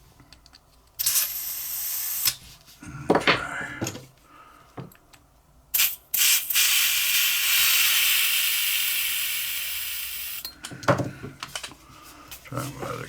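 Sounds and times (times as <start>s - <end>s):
gas hissing from refill can: 1.0s - 2.4s, 5.7s - 10.5s.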